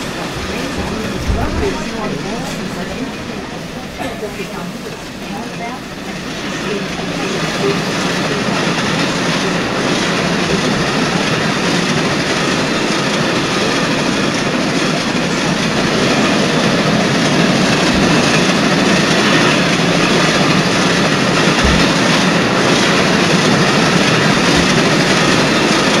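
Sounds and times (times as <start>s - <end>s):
train running noise: 0.0s - 26.0s
low thumps: 21.4s - 22.4s.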